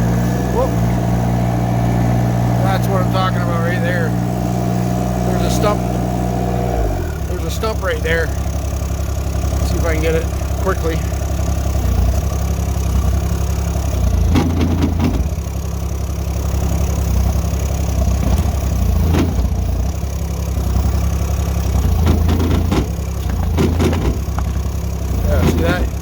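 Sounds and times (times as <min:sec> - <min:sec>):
excavator engine running: 0:00.0 - 0:26.0
bucket knocks and scrapes: 0:21.8 - 0:26.0.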